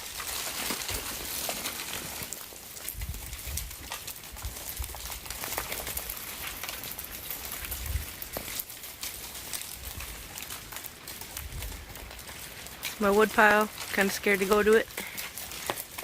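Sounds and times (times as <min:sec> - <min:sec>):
dull thuds of ice: 0:00.0 - 0:03.0
falling ice ticking and clinking: 0:00.0 - 0:16.0.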